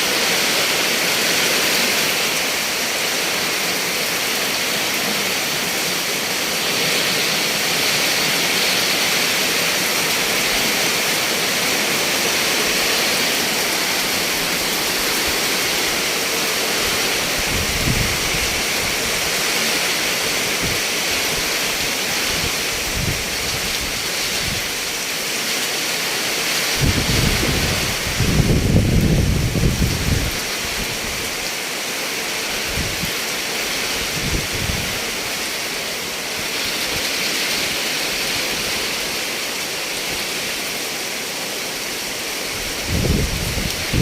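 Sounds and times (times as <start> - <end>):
heavy rain pouring: 0.0 - 44.0
gusty wind rumbles: 13.4 - 19.3, 26.7 - 31.1, 34.1 - 35.0, 42.6 - 44.0.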